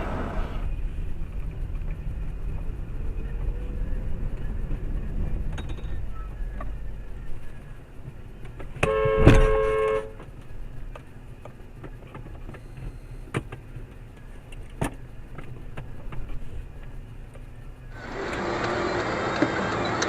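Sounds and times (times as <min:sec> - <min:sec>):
car engine and road rumble: 0:00.0 - 0:20.0
car horn blaring: 0:08.8 - 0:10.2.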